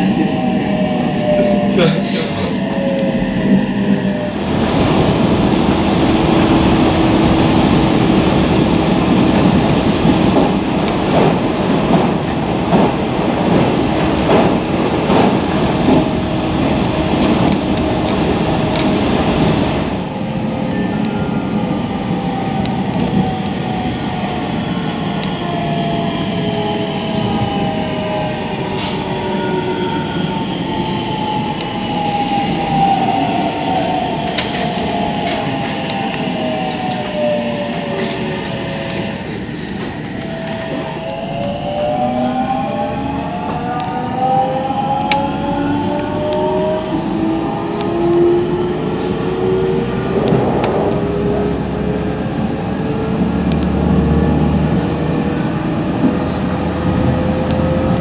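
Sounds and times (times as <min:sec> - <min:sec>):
train steady hum: 0:00.0 - 0:58.0.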